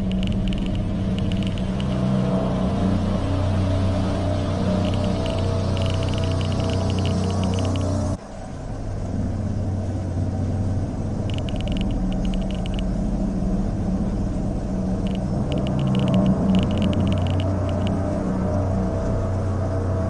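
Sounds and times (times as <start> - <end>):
rapid clicking: 0.0 - 2.1, 4.6 - 8.2, 11.3 - 12.9, 15.0 - 18.0
low droning rumble: 0.0 - 20.0.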